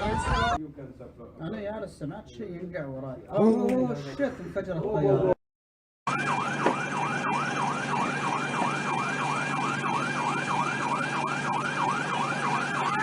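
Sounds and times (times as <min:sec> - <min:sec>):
siren in yelp mode: 0:06.1 - 0:13.0.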